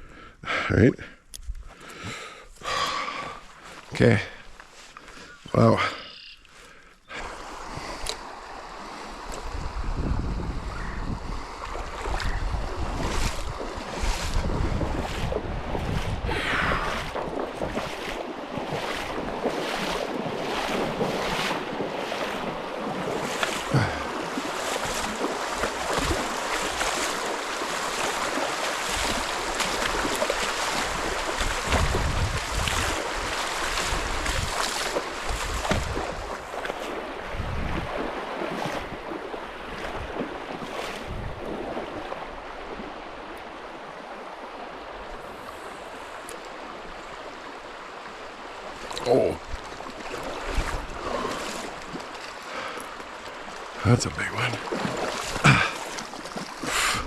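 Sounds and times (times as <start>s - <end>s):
creek water rushing: 2.2s - 57.0s
wind gusting on microphone: 9.0s - 19.4s, 30.7s - 36.5s, 37.1s - 39.1s, 41.0s - 41.9s, 50.4s - 51.5s.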